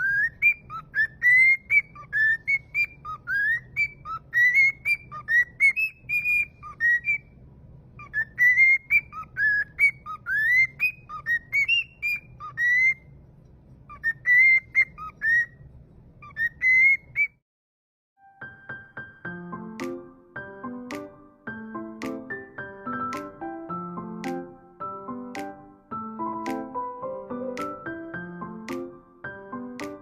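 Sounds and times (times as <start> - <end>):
cockatiel whistling: 0.0 - 7.4, 8.0 - 13.2, 13.9 - 17.4.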